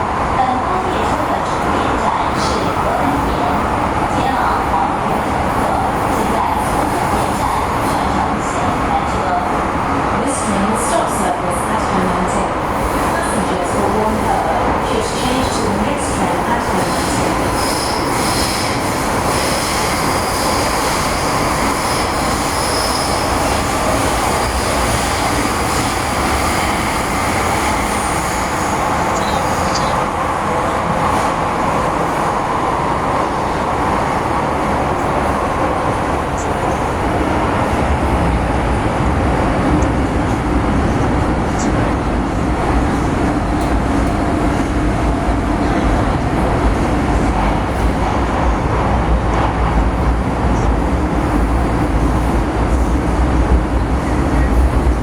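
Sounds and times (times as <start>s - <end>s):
train rumbling: 0.0s - 55.0s
train wheel squeal: 17.0s - 27.2s.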